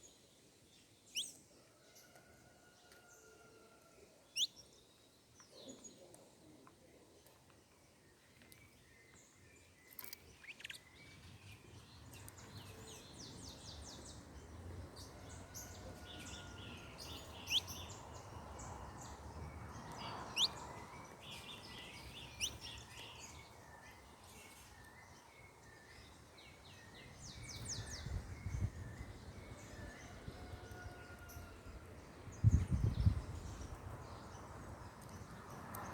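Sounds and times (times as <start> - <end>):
small birds chirping: 4.3 - 30.0.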